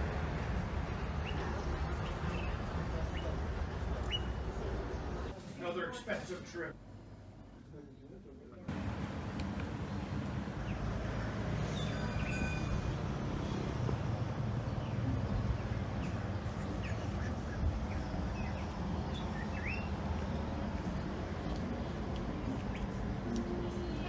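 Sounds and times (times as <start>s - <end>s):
low outdoor rumble: 6.8s - 11.6s.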